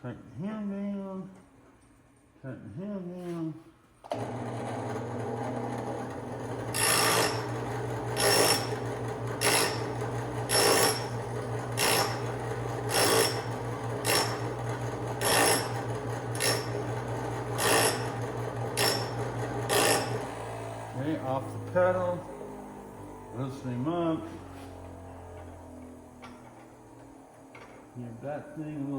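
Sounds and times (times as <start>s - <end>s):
bench grinder motor hum: 4.1s - 28.9s
drill bit rasping on grinding wheel: 4.2s - 22.1s.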